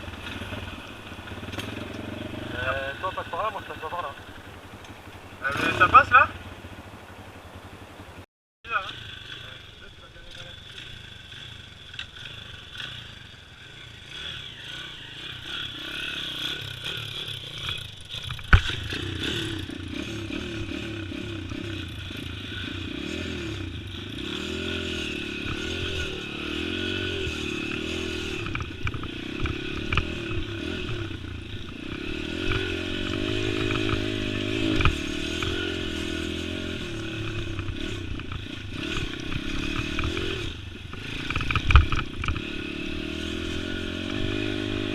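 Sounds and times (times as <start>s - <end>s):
pit bike engine revving: 0.0s - 44.9s
bike rattles and knocks: 16.8s - 19.8s, 37.2s - 42.5s.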